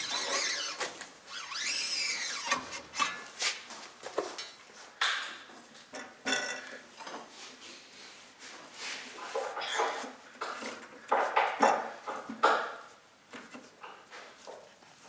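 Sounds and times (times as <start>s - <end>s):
rising and falling squeal: 0.0s - 3.1s.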